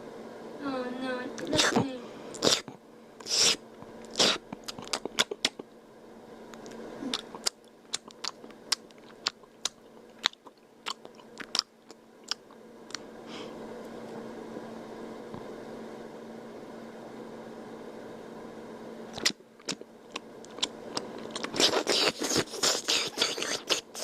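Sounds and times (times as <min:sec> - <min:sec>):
steady low hum: 0:00.0 - 0:24.0
wet mouth slurping and clicks: 0:01.4 - 0:05.6, 0:06.5 - 0:13.0, 0:19.1 - 0:24.0.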